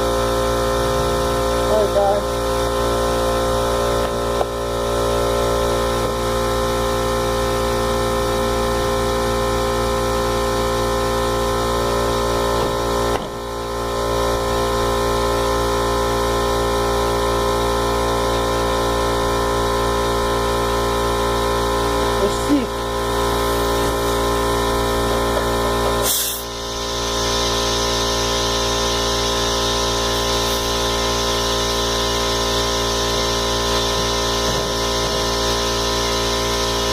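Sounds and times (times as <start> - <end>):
air compressor humming: 0.0 - 36.9.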